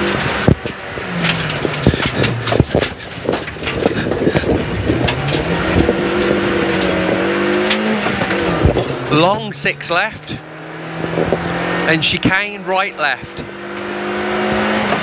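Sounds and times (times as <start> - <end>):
sharp knocks and rattles: 0.0 - 11.6
car engine working hard: 0.0 - 15.0.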